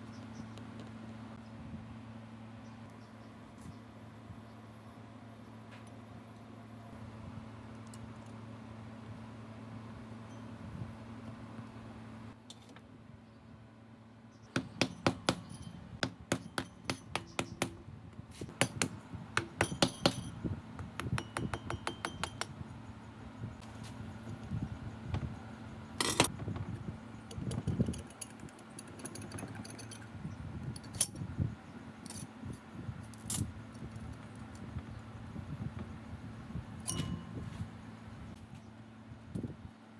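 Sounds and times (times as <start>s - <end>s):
steady low hum: 0.0s - 39.9s
metal parts and tools clinking: 14.9s - 17.4s, 19.6s - 20.4s, 26.0s - 26.3s, 27.2s - 31.3s, 32.0s - 32.3s, 36.8s - 37.4s.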